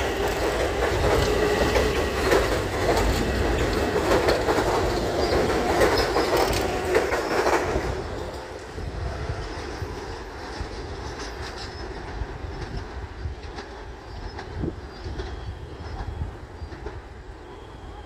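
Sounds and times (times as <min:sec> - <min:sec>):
wheels clicking and knocking: 0:00.0 - 0:08.1
train rumbling past: 0:00.0 - 0:18.0.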